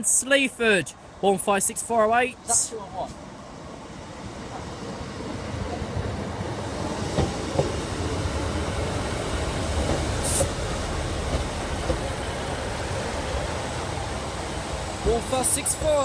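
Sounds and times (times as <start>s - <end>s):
train engine and wheels rumbling: 0.0s - 16.0s
brief high hiss: 10.2s - 10.6s.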